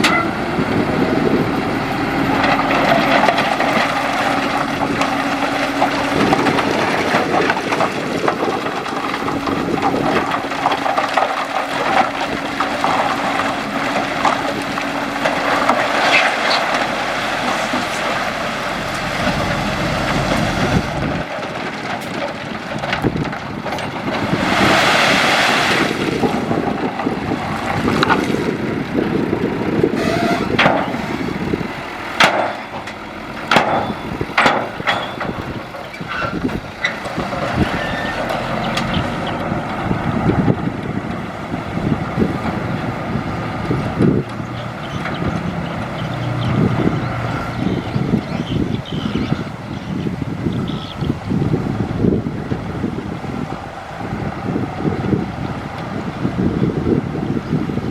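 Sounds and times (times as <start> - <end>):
diesel engines running: 0.0 - 57.9
sharp knocks and clanks: 32.2 - 37.4.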